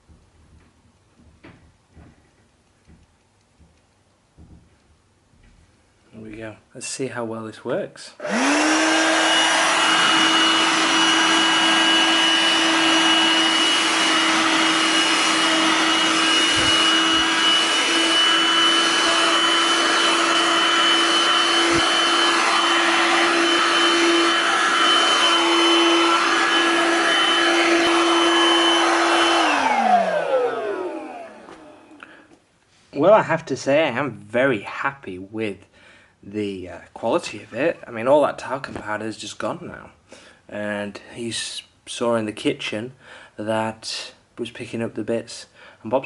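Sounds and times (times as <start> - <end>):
handheld vacuum running: 8.2 - 32.2.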